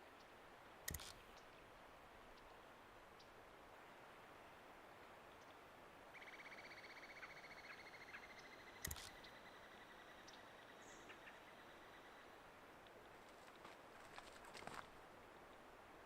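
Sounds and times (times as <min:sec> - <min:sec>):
sharp click: 0:00.9 - 0:01.2, 0:08.8 - 0:09.2.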